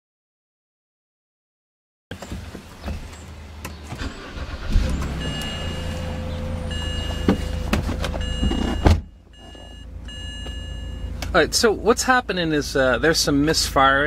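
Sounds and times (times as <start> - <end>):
car engine starting and idling: 2.1 - 14.0
faint on-off high tone: 5.2 - 11.3.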